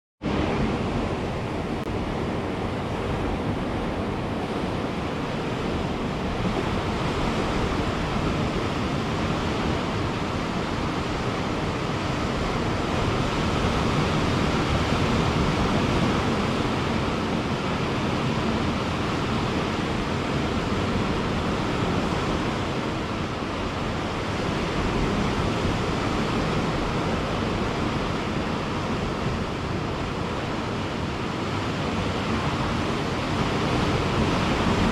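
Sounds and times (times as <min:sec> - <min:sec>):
ocean surf breaking on beach: 0:00.2 - 0:34.9.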